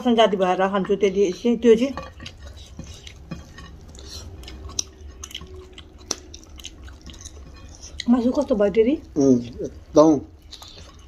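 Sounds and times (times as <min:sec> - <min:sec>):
wet chewing and lip smacks: 0:02.2 - 0:08.1, 0:09.5 - 0:11.0.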